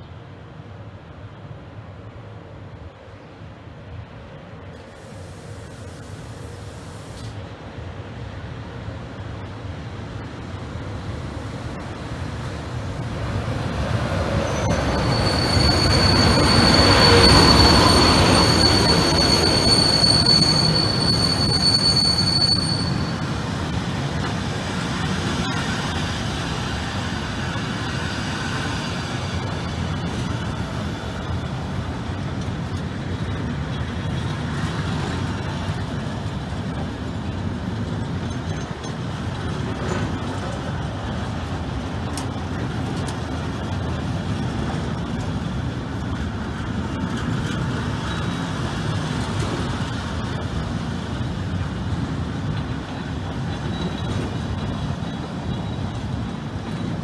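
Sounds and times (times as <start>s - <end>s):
train running past: 0.0s - 57.0s
high wheel squeal: 14.2s - 23.8s.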